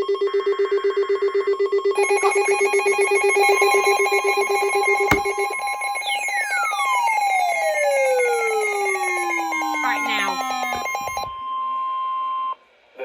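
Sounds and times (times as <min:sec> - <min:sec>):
sharp click: 0:05.1 - 0:05.3.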